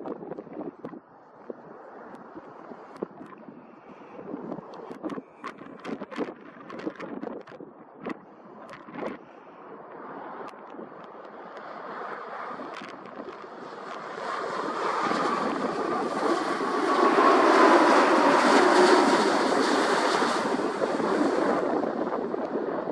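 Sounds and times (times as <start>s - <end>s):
jet engines passing: 10.1s - 22.9s.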